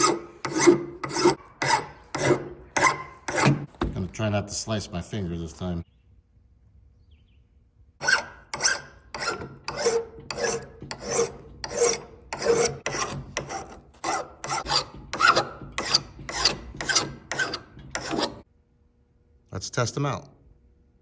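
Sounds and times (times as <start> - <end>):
file rasping on steel edge: 0.0 - 3.7, 8.0 - 18.5.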